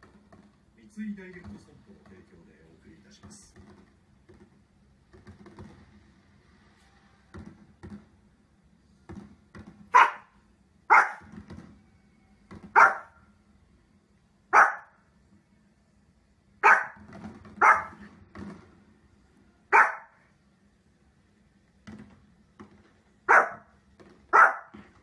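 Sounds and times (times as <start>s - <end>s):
small dog barking: 9.9s - 11.3s, 12.7s - 13.2s, 14.5s - 15.0s, 16.6s - 17.0s, 17.6s - 18.0s, 19.7s - 20.2s, 23.3s - 23.7s, 24.3s - 24.8s.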